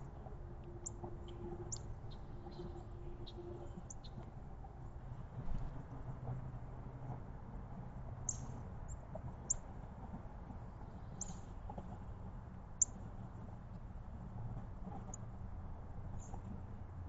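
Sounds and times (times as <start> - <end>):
songbirds chirping: 0.0 - 4.4
low steady rumble: 0.0 - 17.0.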